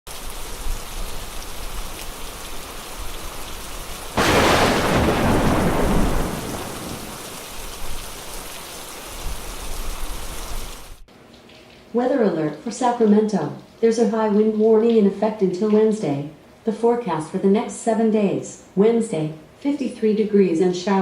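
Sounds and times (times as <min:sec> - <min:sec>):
steady rain falling: 0:00.1 - 0:13.0
thunder clap: 0:04.2 - 0:07.9.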